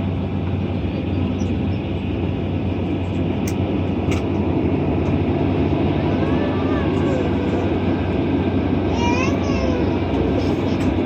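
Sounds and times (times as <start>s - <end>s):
aircraft cabin rumble: 0.0s - 11.0s.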